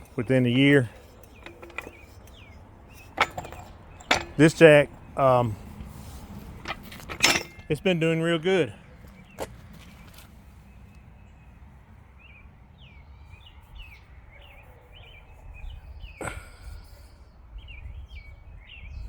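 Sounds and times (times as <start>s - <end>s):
small birds chirping: 0.0s - 6.7s, 7.6s - 19.0s
low outdoor rumble: 0.0s - 12.2s.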